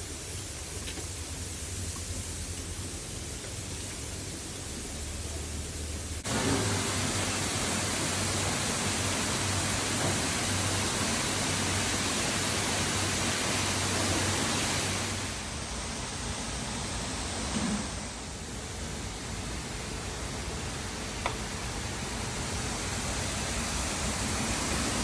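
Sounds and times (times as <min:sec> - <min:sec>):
waterfall rushing: 0:04.9 - 0:15.6.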